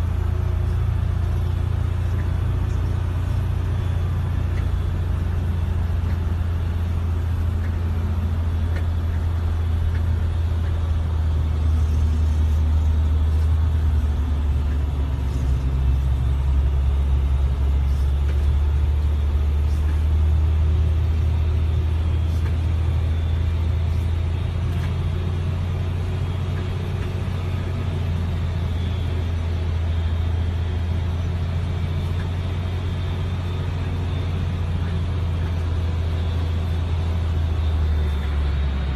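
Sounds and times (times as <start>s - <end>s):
low engine rumble: 0.0s - 38.9s.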